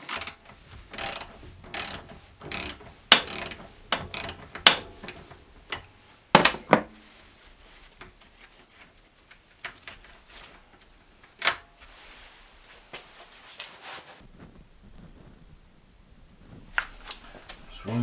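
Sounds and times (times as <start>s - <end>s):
metal tools clinking and knocking: 0.0s - 7.1s.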